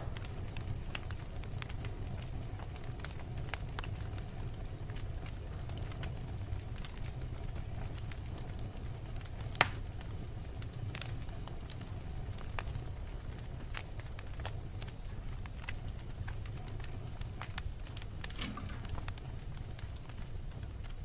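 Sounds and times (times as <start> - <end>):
logs burning in fireplace: 0.0 - 21.0
loud fire pop: 18.2 - 19.2.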